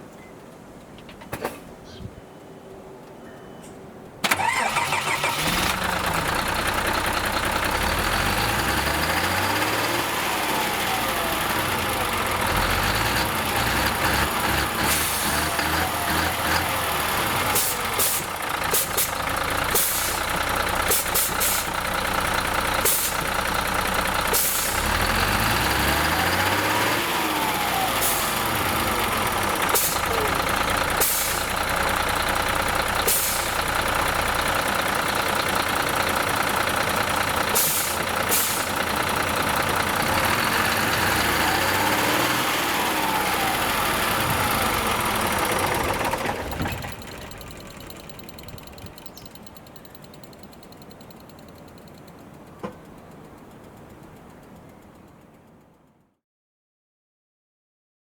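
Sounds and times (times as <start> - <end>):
coach diesel engine starting and idling: 4.2 - 55.7
short air hisses: 17.6 - 19.1, 19.7 - 20.2, 20.9 - 21.7, 22.8 - 23.2, 24.3 - 24.9, 29.7 - 30.1, 31.0 - 31.5, 33.1 - 33.6, 37.6 - 38.8.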